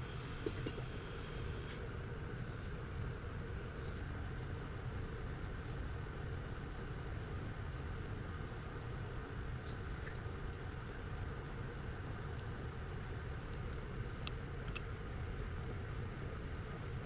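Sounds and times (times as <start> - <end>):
low background hum: 0.0 - 17.0
faint light clicks: 13.5 - 14.9.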